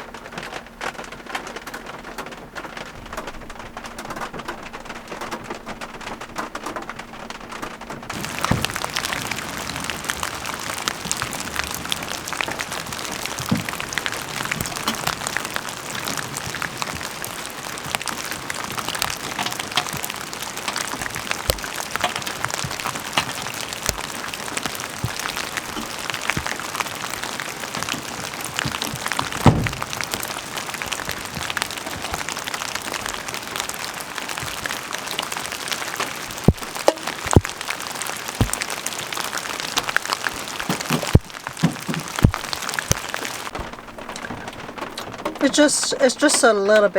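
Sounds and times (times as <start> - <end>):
heavy rain on a hard surface: 0.0 - 46.9
heavy knock: 28.6 - 30.2.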